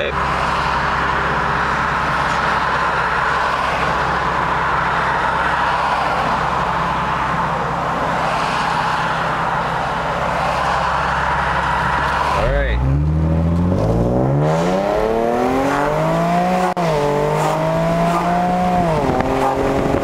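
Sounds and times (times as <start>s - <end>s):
car engine idling: 0.0s - 13.8s
traffic road noise: 0.0s - 20.0s.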